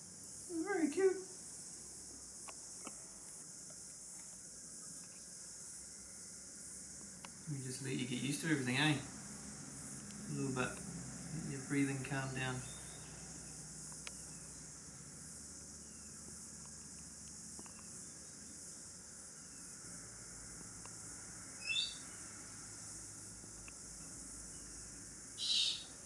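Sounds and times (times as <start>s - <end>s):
faint steady hiss: 0.0s - 26.0s
small ticks: 0.2s - 0.5s, 2.4s - 5.3s, 7.0s - 7.4s, 10.0s - 11.0s, 12.8s - 14.5s, 16.2s - 18.1s, 20.6s - 21.1s, 23.5s - 24.8s
distant chirps: 10.1s - 14.6s, 21.6s - 22.1s, 25.4s - 26.0s
short high bird chirp: 25.4s - 25.9s.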